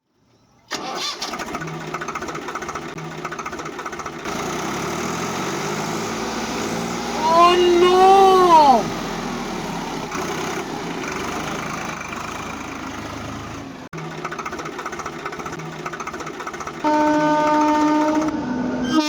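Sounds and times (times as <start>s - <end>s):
fast even ticking: 14.0s - 18.3s
horn-like tone: 16.8s - 19.0s.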